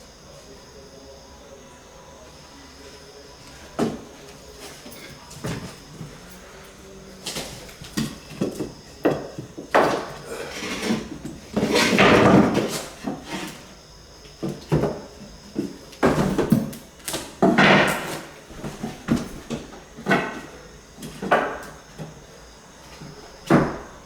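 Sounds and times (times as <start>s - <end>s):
wood scraping on wood: 7.8s - 13.8s.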